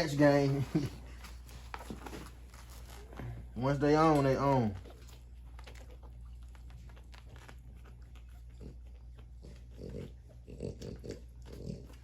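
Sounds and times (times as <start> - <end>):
puppies suckling: 3.8 - 12.0
puppy grunts: 8.5 - 12.0.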